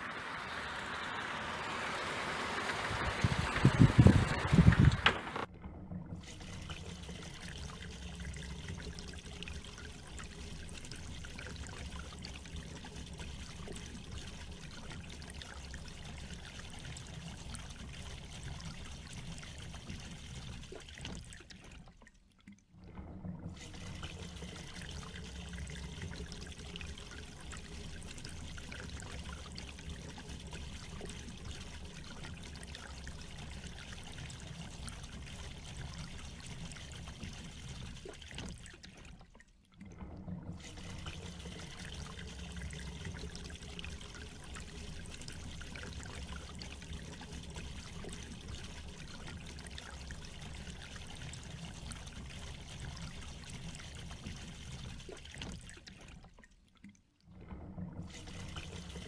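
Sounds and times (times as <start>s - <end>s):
rain falling and splashing: 0.0s - 5.5s.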